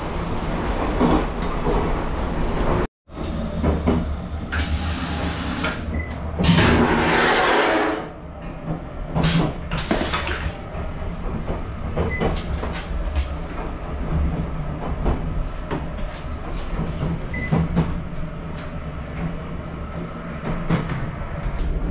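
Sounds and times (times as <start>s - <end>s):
electric train rumble: 0.0s - 21.9s.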